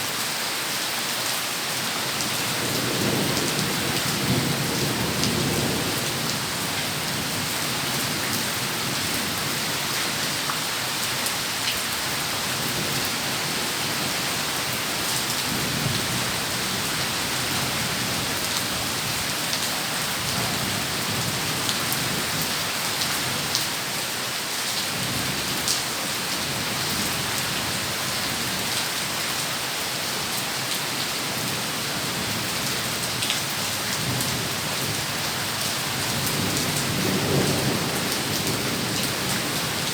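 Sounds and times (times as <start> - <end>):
heavy rain pouring: 0.0 - 39.9
thunder rumbling: 35.9 - 39.9.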